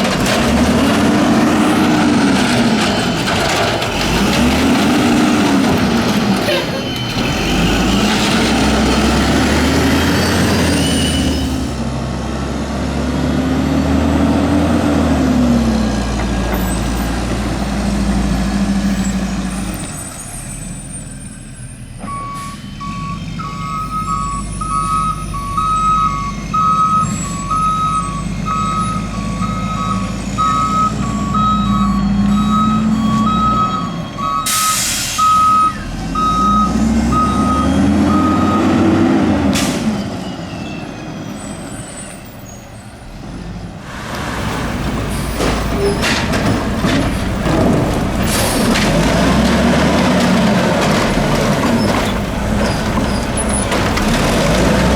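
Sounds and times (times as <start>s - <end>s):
truck engine revving: 0.0s - 20.4s, 22.2s - 41.5s, 43.0s - 54.9s
reversing alarm beeping: 22.0s - 39.2s
air brake hiss: 34.5s - 35.4s.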